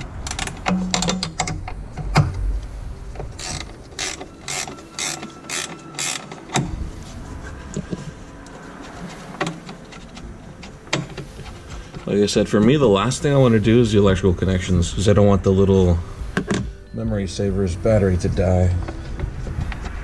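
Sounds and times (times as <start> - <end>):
socket ratchet clicking: 3.4 - 6.6.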